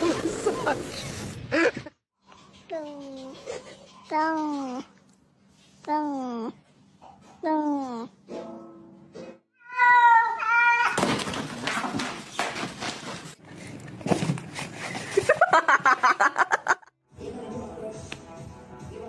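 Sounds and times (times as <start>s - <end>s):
cat meowing: 9.6s - 11.0s.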